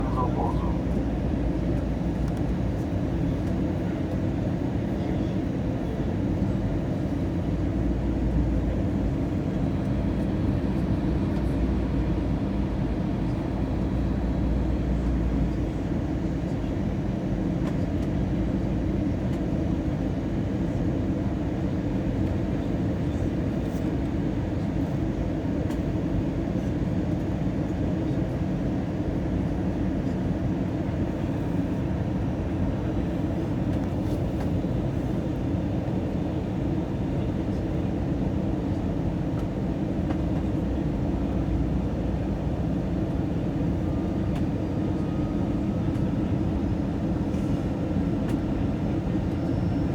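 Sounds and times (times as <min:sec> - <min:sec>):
aircraft cabin rumble: 0:00.0 - 0:16.8, 0:27.7 - 0:49.9.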